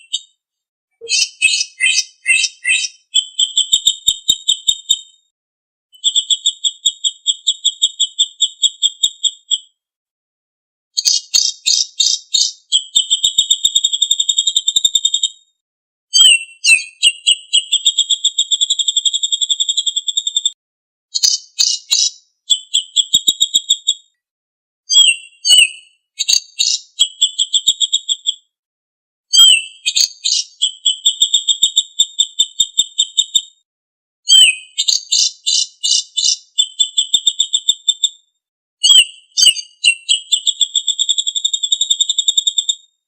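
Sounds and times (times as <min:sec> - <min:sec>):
songbird trilling: 0:01.0 - 0:04.0, 0:11.0 - 0:13.3, 0:21.2 - 0:22.9, 0:24.9 - 0:27.4, 0:29.3 - 0:30.8, 0:34.3 - 0:36.8, 0:38.8 - 0:40.7.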